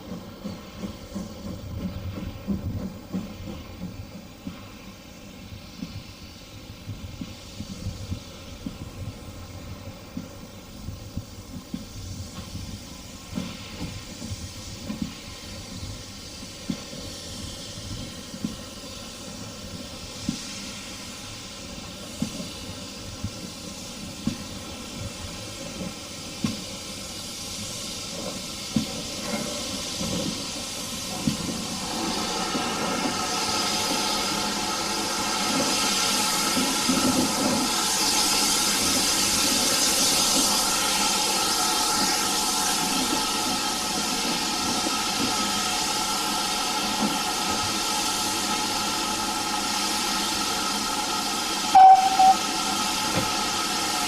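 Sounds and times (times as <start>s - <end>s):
steam hissing: 0.0s - 54.0s
steam whistle toot: 51.6s - 52.9s.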